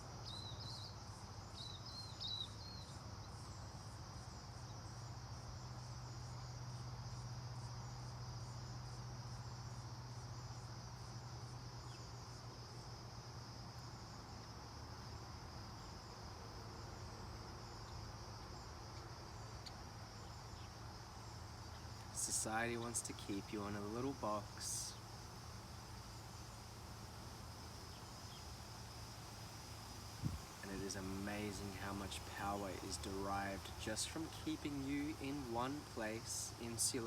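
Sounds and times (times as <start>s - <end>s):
insects chirping: 0.0s - 37.0s
low steady hum: 30.2s - 37.0s.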